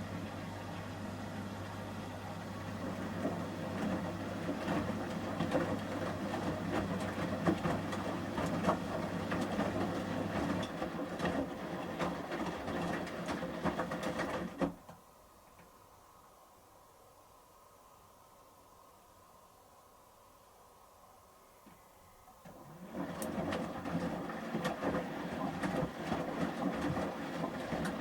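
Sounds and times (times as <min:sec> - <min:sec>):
washing machine motor hum: 0:00.0 - 0:15.2, 0:22.1 - 0:28.0
wet laundry sloshing in drum: 0:02.4 - 0:14.8, 0:22.4 - 0:28.0.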